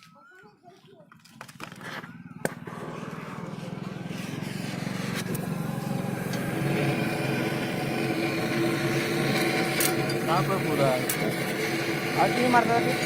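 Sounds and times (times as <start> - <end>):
two-stroke motorcycle engine running: 1.1 - 13.0.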